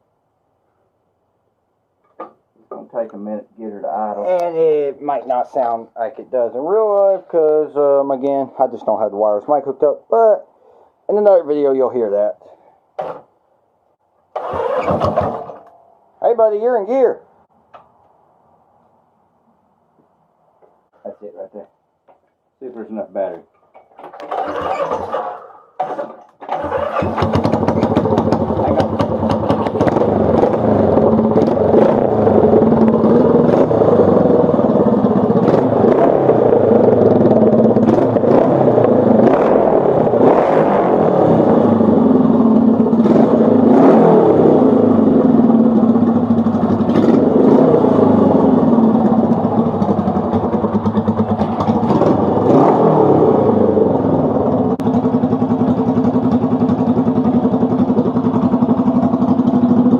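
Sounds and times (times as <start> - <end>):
motorcycle engine revving: 14.3 - 15.7, 24.2 - 59.9.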